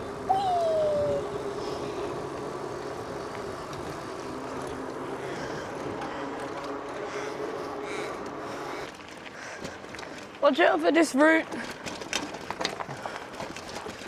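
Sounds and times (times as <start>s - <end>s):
vehicle engine humming: 0.0s - 9.0s.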